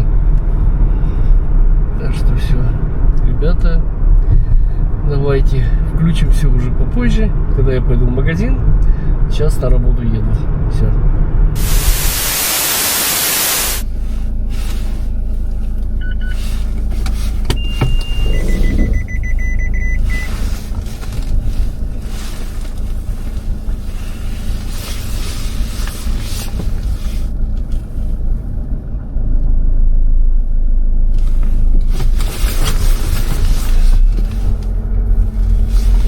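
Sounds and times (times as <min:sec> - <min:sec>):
engine and road rumble: 0:00.0 - 0:36.0
high electronic tones: 0:17.6 - 0:20.3.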